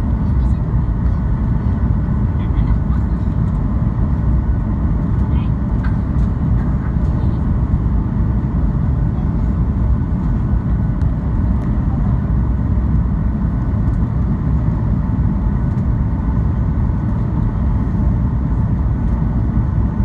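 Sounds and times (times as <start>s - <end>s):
airplane cabin engine rumble: 0.0s - 20.0s.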